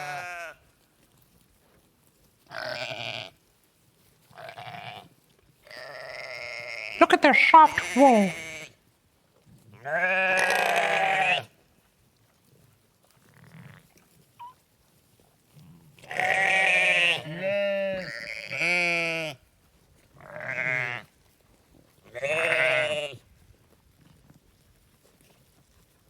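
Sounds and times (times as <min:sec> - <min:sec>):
sheep bleating: 0:00.0 - 0:00.6, 0:02.5 - 0:03.4, 0:04.4 - 0:05.1, 0:05.7 - 0:08.7, 0:09.8 - 0:11.5, 0:16.0 - 0:19.4, 0:20.2 - 0:21.1, 0:22.1 - 0:23.2.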